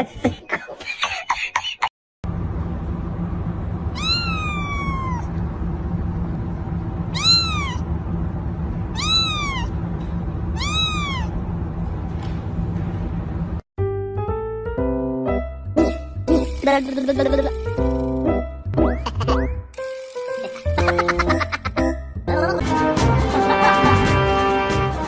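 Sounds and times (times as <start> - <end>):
steady low hum: 2.2 - 13.6
kitten meowing: 4.0 - 5.3, 7.1 - 7.8, 8.9 - 9.7, 10.6 - 11.3.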